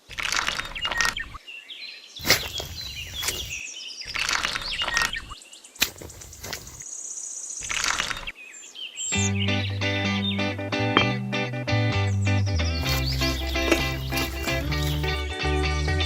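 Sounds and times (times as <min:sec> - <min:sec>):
birds chirping: 0:00.0 - 0:15.3
sharp clicks: 0:07.6 - 0:08.3
noisy scraping haze: 0:12.8 - 0:15.2.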